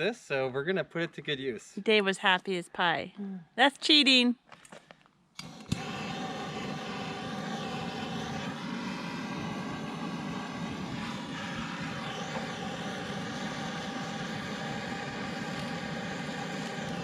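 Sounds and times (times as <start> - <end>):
gas torch flame rushing: 5.4 - 17.0.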